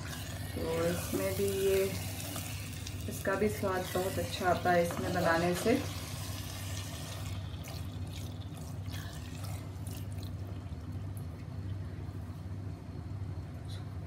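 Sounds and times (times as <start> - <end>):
meat sizzling with crackles: 0.0 - 10.3
steady low hum: 0.0 - 14.0
spatula scraping pot: 3.2 - 7.2.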